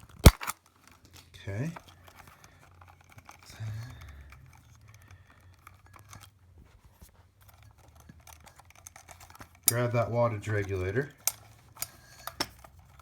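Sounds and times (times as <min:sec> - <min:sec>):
plastic and wires crinkling: 0:00.0 - 0:13.0.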